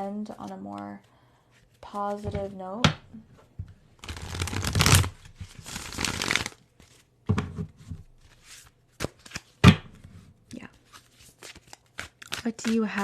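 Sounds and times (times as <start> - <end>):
cards being shuffled by hand: 4.0 - 7.1, 10.7 - 13.0.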